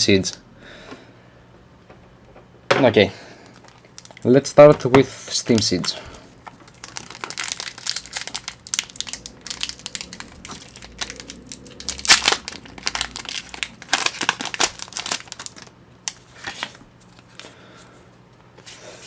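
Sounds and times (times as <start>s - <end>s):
foil wrapper crinkling: 3.5s - 17.5s.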